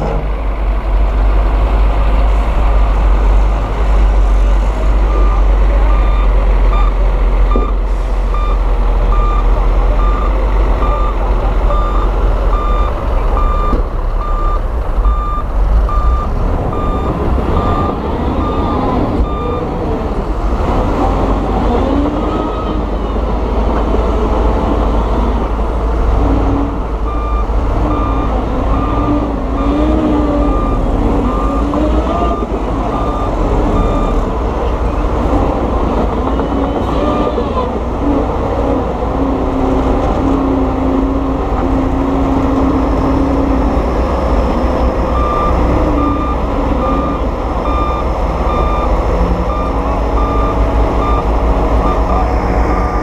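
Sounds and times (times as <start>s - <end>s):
diesel machinery rumbling: 0.0s - 53.0s
reversing alarm beeping: 5.0s - 19.7s, 27.1s - 34.2s, 44.6s - 52.4s.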